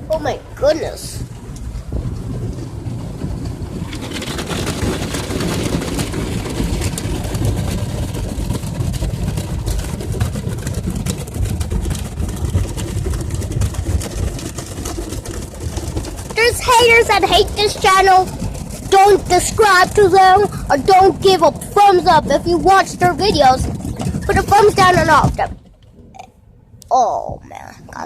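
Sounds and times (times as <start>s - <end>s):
car wash machinery rumble: 0.0s - 26.1s.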